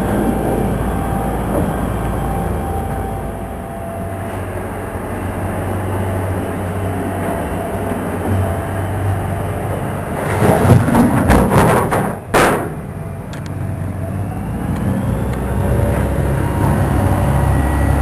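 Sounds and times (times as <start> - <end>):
motorboat engine humming: 0.0 - 11.2, 12.2 - 18.0
sharp loud thump: 11.3 - 12.8.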